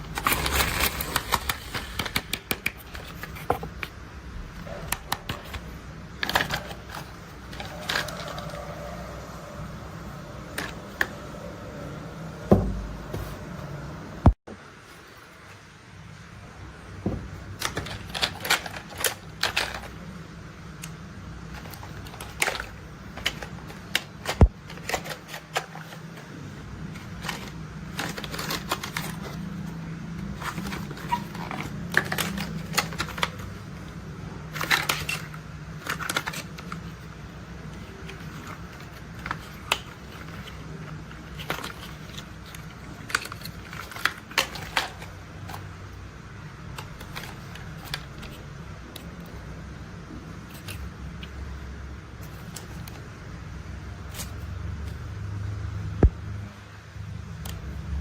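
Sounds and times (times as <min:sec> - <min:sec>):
plastic toys clicking and tapping: 0:17.6 - 0:20.0.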